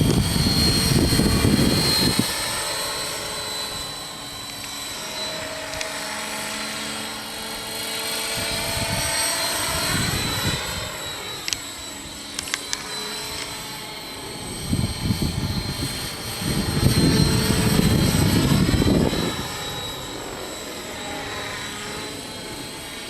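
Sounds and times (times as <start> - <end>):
wind rumble on microphone: 0.0 - 2.5, 8.3 - 11.0, 14.2 - 19.9
rc helicopter rotor and motor whine: 0.0 - 23.0.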